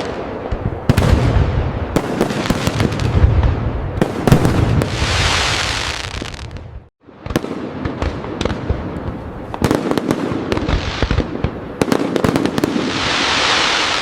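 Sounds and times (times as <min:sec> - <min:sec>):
fireworks bangs and crackles: 0:00.0 - 0:14.0
fireworks hissing: 0:04.3 - 0:06.6, 0:12.6 - 0:14.0.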